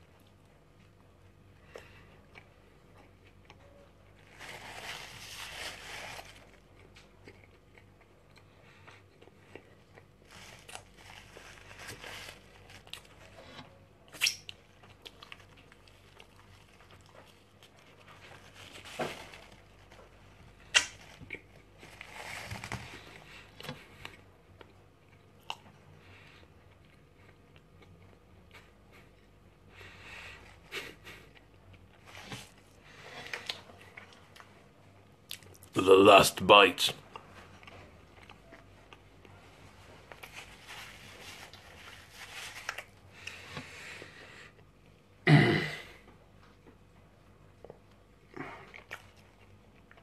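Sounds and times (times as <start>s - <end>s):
person chewing: 6.2s - 18.8s, 22.9s - 29.1s, 47.6s - 50.0s.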